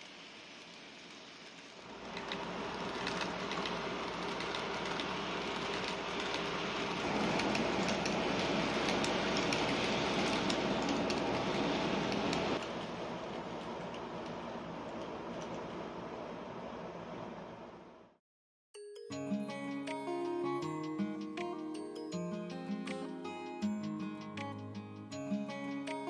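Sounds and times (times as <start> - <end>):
train running on rails: 0.0 - 15.8.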